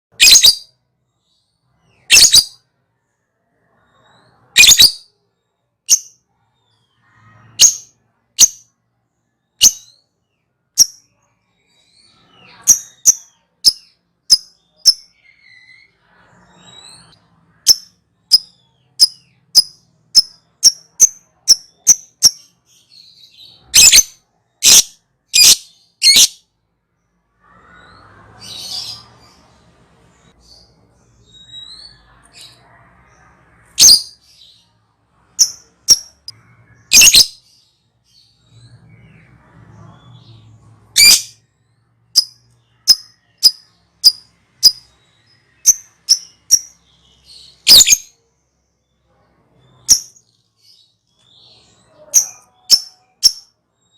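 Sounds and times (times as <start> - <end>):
lovebird shrill calls: 0.2 - 0.6, 2.1 - 2.6, 23.7 - 26.4.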